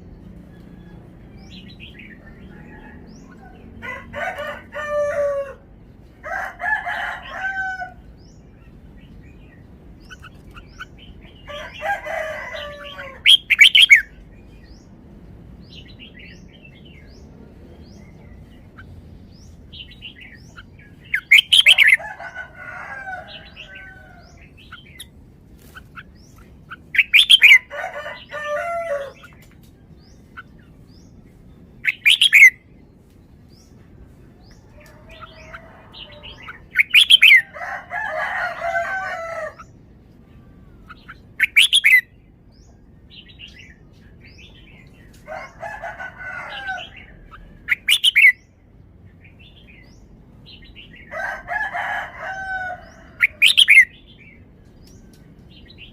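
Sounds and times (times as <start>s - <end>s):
bird singing chirpy phrases: 15.7s - 22.0s, 25.8s - 33.8s, 34.5s - 37.5s, 39.5s - 45.0s, 46.4s - 51.1s.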